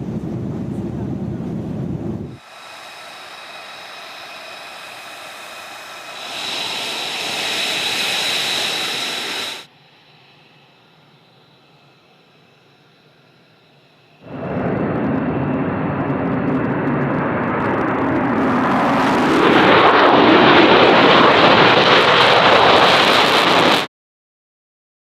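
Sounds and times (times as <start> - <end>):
faint hum: 0.0 - 19.2
loud jet engine noise: 0.0 - 23.9.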